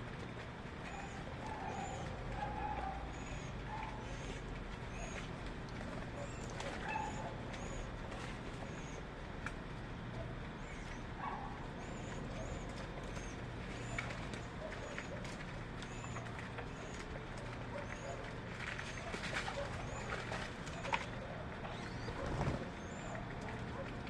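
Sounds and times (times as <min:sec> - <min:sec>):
small birds chirping: 0:19.7 - 0:23.6.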